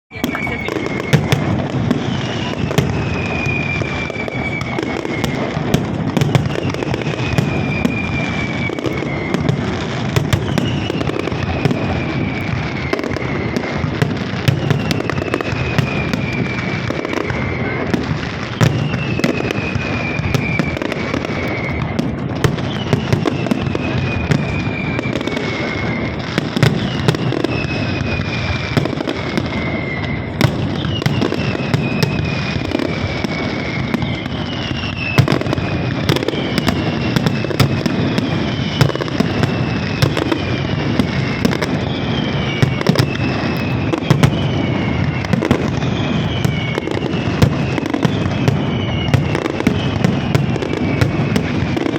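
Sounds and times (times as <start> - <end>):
falling firework whistle: 0.1 - 51.9
fireworks crackling and banging: 0.1 - 51.9.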